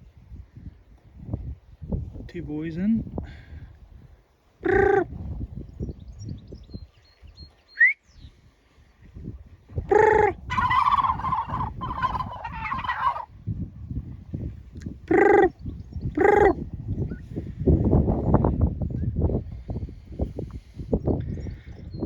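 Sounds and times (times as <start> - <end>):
turkeys gobbling: 4.6 - 5.1, 9.9 - 13.3.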